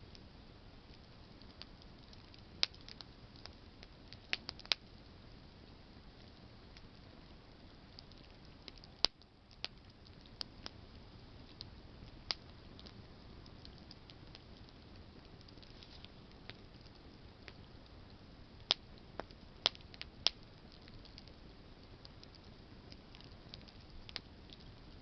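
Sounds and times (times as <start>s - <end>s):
campfire crackling and popping: 0.0s - 25.0s
low hiss of fire: 0.0s - 25.0s.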